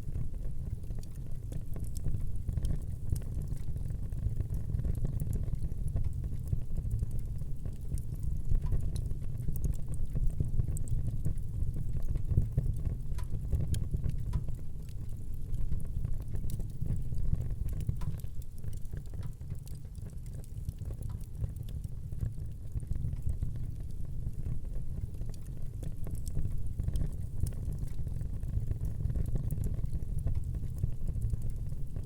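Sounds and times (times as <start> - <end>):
fire crackling and popping: 0.0 - 32.0
fire flame rumble: 0.0 - 32.0.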